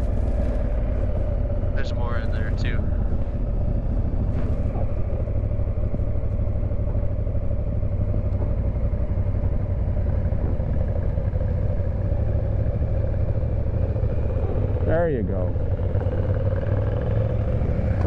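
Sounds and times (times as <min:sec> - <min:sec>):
motorcycle engine running: 0:00.0 - 0:18.0
wind and road noise: 0:00.0 - 0:18.0.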